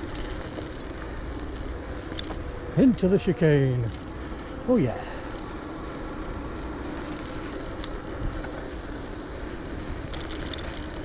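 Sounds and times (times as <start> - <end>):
tyres rolling on path: 0.0 - 11.0
wind buffeting microphone: 5.6 - 11.0.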